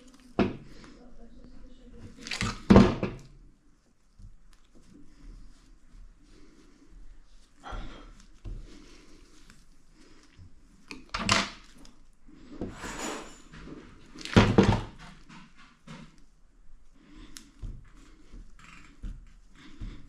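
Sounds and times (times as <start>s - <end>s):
handling thunks and rustles: 4.0s - 11.9s, 12.5s - 16.4s, 17.1s - 20.0s.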